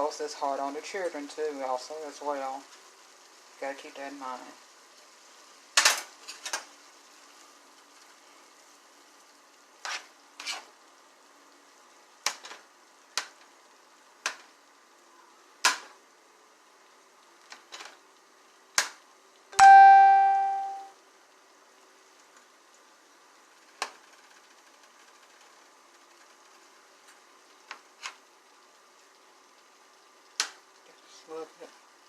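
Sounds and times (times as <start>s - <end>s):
faint sizzle: 0.0s - 32.0s
ringing metallic strike: 19.6s - 20.9s.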